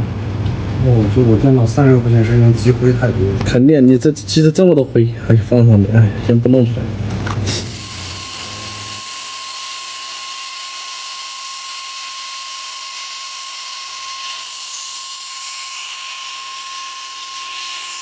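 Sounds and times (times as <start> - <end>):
small high-speed motor whining: 7.4 - 18.0.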